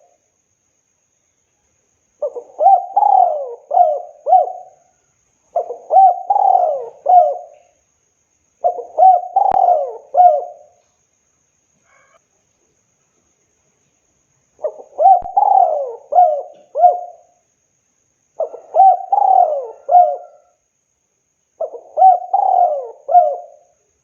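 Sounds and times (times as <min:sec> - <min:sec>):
dove cooing: 0:02.2 - 0:04.9, 0:05.5 - 0:07.8, 0:08.6 - 0:10.8, 0:14.6 - 0:17.4, 0:18.4 - 0:20.6, 0:21.6 - 0:23.7.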